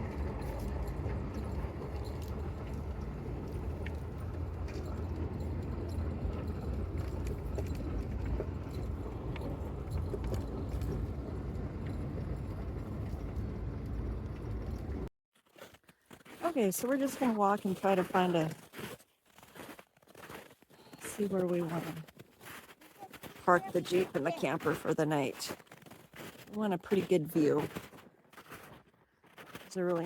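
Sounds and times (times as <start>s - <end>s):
engine and tyres rumbling: 0.0s - 15.1s.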